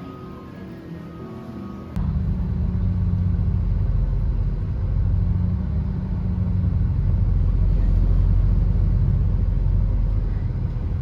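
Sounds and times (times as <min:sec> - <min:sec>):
train rumbling: 0:02.0 - 0:11.0.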